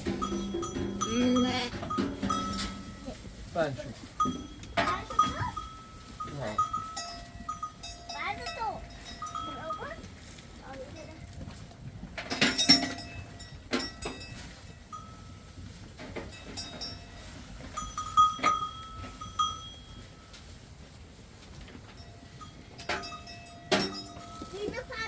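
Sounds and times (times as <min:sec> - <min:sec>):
animal bells clinking: 0:00.0 - 0:25.0
livestock bleating: 0:01.0 - 0:02.0.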